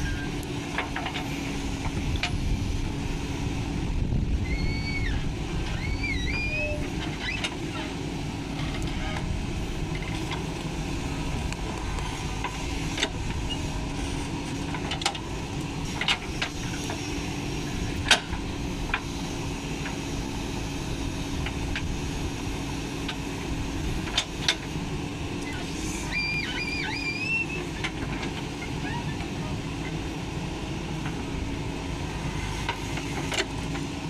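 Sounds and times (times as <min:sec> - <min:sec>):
diesel engine running: 0:00.0 - 0:34.0
short wavering whistle: 0:04.4 - 0:05.2, 0:26.0 - 0:27.6.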